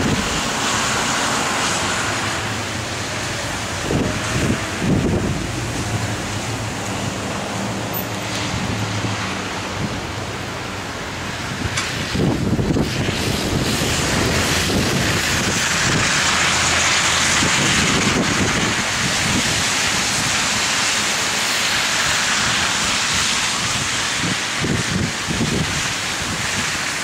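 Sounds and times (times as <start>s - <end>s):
wind buffeting microphone: 0.0s - 1.0s, 2.4s - 7.8s, 11.1s - 20.9s, 22.4s - 27.0s
blizzard wind hissing: 0.0s - 27.0s.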